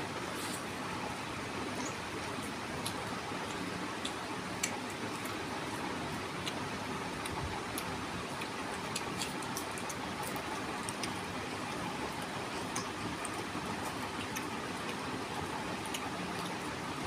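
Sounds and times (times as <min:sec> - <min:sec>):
person chewing food: 0:01.8 - 0:16.8
wet mouth clicks and smacks: 0:02.8 - 0:05.4.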